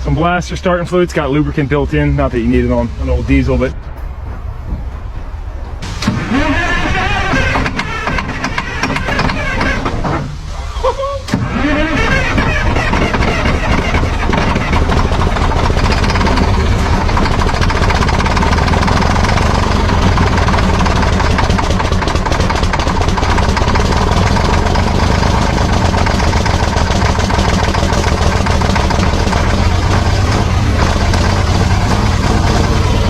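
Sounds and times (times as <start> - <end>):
old diesel engine running: 0.0 - 33.0.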